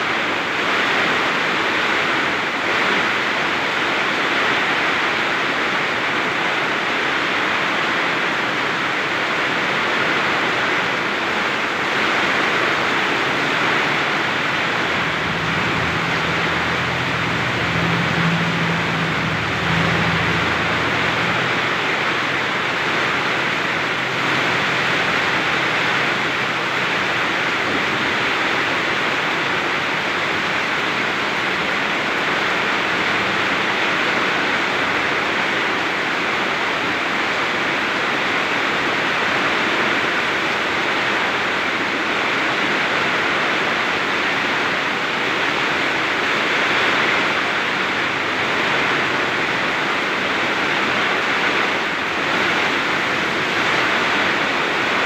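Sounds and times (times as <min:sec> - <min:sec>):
heavy rain pouring: 0:08.5 - 0:35.5, 0:45.2 - 0:55.0
strong wind: 0:11.9 - 0:31.9.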